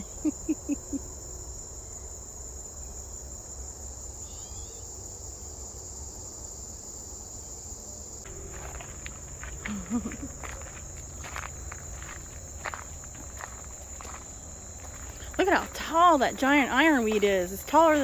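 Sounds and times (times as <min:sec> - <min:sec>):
insects chorus: 0:00.0 - 0:18.0
footsteps through vegetation: 0:08.3 - 0:18.0.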